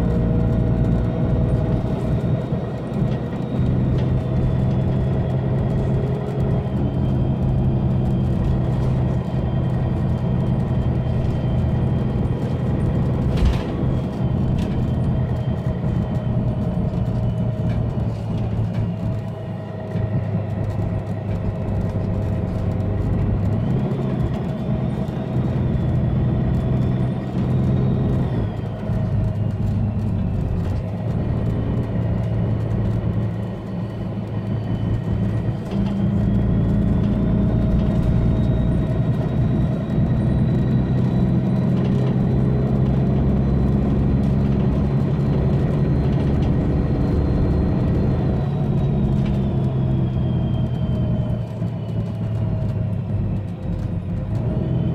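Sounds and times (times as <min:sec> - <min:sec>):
bus diesel engine under load: 0:00.0 - 0:54.9.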